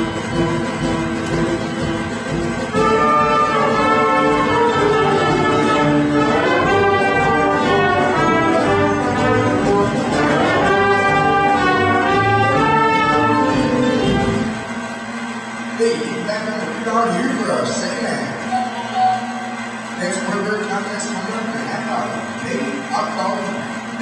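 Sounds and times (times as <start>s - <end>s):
live brass band music: 0.0s - 14.6s
trumpets and trombones sweeping runs: 0.0s - 22.4s.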